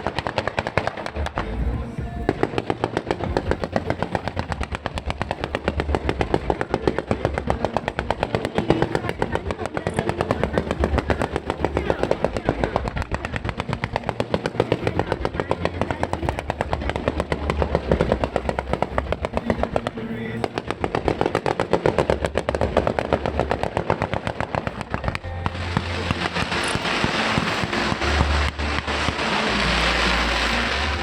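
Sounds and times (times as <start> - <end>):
fireworks bangs: 0.0 - 31.0.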